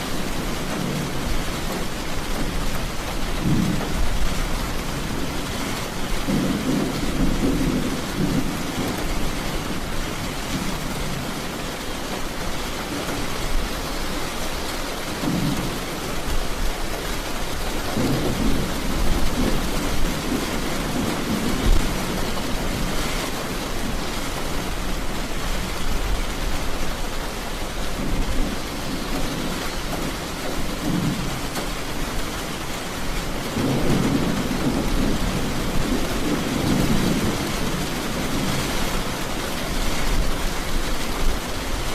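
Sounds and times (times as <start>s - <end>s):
heavy rain: 0.0s - 41.9s
thunder rolling: 0.3s - 11.3s, 17.6s - 26.6s, 27.8s - 32.2s, 33.1s - 40.5s.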